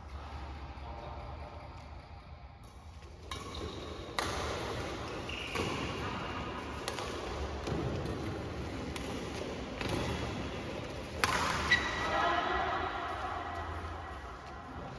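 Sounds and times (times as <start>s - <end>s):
rackets hitting shuttlecock: 3.2s - 12.3s
shoe squeak: 5.1s - 6.0s, 11.6s - 12.1s.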